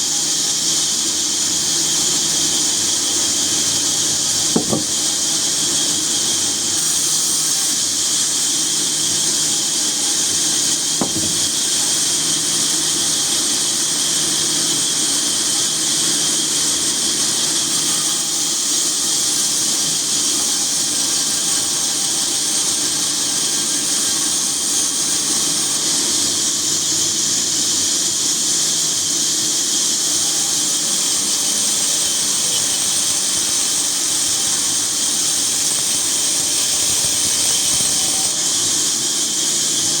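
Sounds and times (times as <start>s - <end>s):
woodworking machine running: 4.5s - 5.4s, 11.0s - 11.9s
faint knock: 4.6s - 5.2s, 11.0s - 11.6s.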